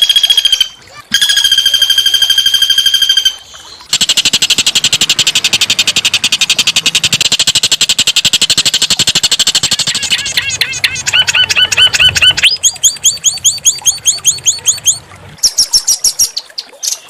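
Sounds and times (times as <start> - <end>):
songbird trilling: 0.0 - 3.8, 8.0 - 17.0.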